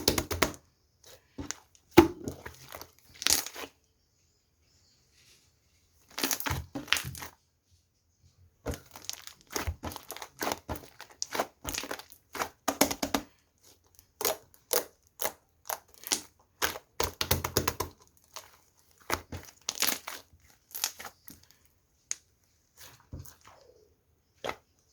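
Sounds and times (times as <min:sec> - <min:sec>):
slime crackling and popping: 0:01.4 - 0:03.7, 0:06.1 - 0:07.3, 0:08.7 - 0:23.4.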